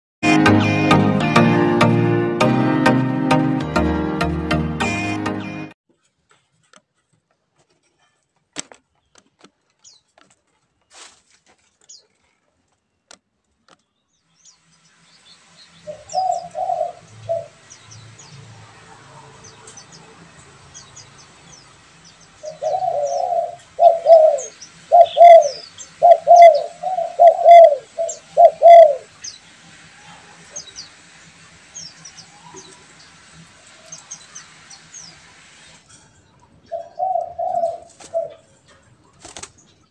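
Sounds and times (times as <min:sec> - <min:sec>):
small birds chirping: 0:08.9 - 0:39.9
doves cooing: 0:15.9 - 0:17.6, 0:22.4 - 0:29.1, 0:36.6 - 0:39.6.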